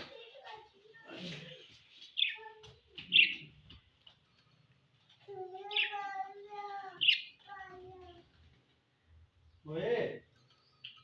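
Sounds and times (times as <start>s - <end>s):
budgerigars chirping: 3.1s - 3.4s.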